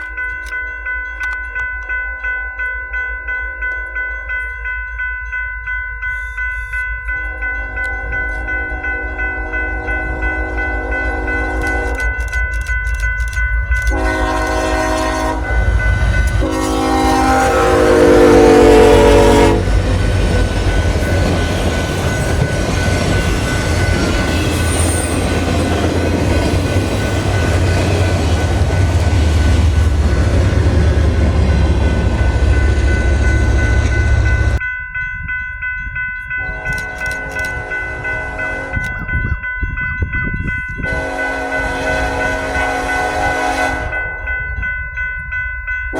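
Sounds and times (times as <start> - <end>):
train passing rumble: 3.4 - 34.6, 35.2 - 45.9
locomotive horn: 7.6 - 12.2, 13.8 - 20.1, 36.4 - 39.0, 40.8 - 44.2.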